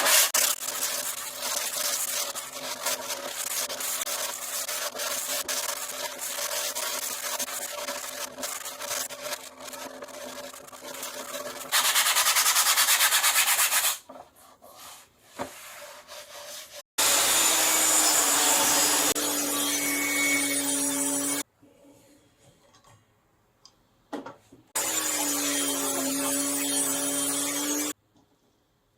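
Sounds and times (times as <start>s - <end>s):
sanding wood rubbing strokes: 0.0s - 14.0s.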